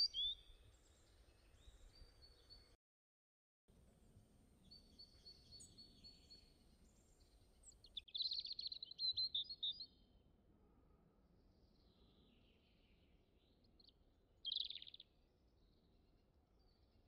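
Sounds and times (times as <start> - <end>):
songbird chirping and trilling: 0.0 - 2.8, 4.6 - 10.0, 11.7 - 15.2.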